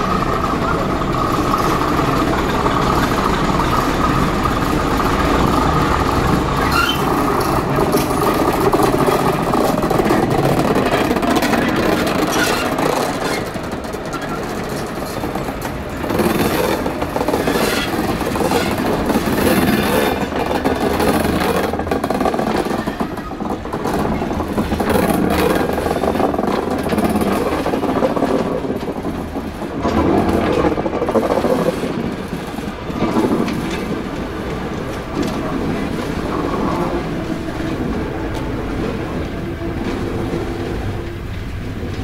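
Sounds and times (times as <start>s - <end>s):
diesel engine running: 0.0s - 9.6s
wheels rumbling on rails: 0.0s - 42.0s.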